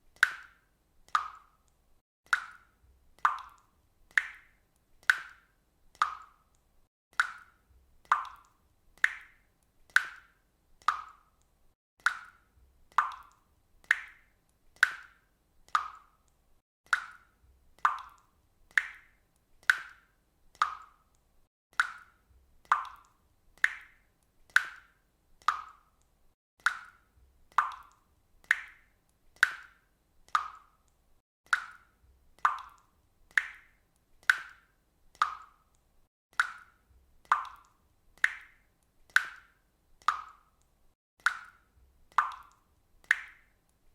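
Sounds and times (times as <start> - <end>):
water dripping: 0.0 - 43.9.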